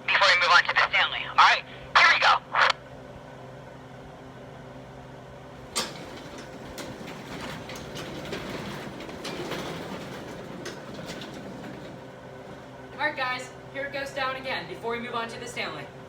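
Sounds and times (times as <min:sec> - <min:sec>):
garage door rollers rumbling: 0:05.5 - 0:14.6.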